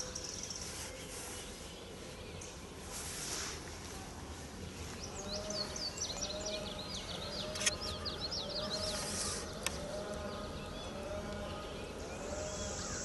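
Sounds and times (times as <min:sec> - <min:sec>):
low repeated bird call: 0:00.0 - 0:13.0
songbird singing: 0:00.0 - 0:13.0.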